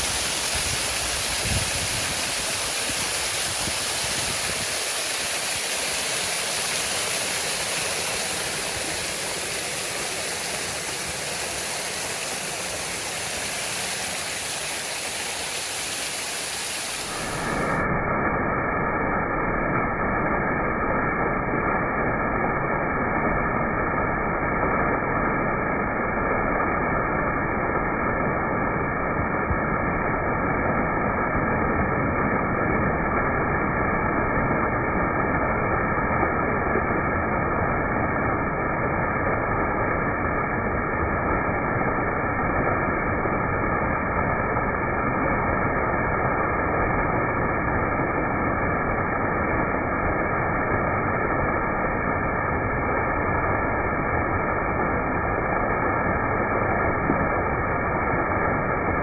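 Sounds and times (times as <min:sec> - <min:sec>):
waterfall roar: 0:00.0 - 0:17.9
faint steady hum: 0:00.0 - 0:59.0.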